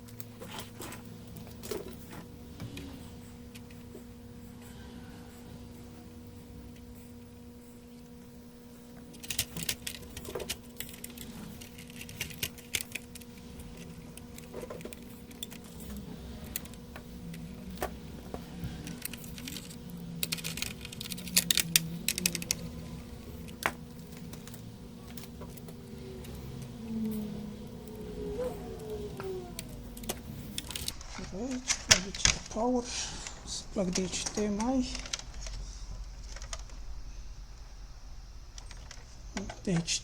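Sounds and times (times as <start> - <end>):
faint electrical hum: 0.0 - 40.0
small hard parts clicking: 8.9 - 37.0, 38.5 - 40.0.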